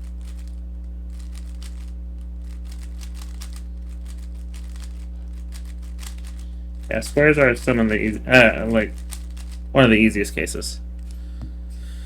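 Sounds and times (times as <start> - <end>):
low electrical hum: 0.0 - 12.0
plastic puzzle cube clicking: 1.1 - 6.4, 8.9 - 9.6.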